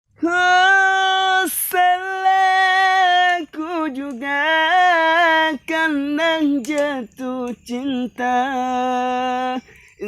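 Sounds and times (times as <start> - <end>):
person singing unaccompanied: 0.1 - 10.0.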